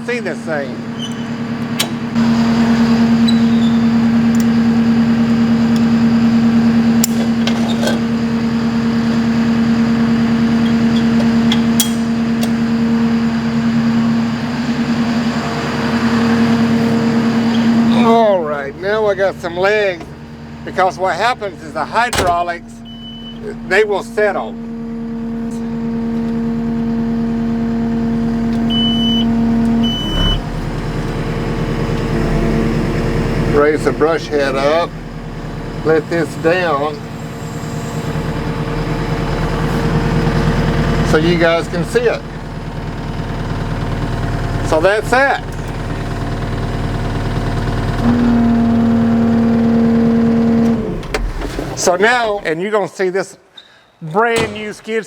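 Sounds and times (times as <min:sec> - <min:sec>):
diesel engine running: 0:00.0 - 0:52.6
short high beeps: 0:28.7 - 0:30.4.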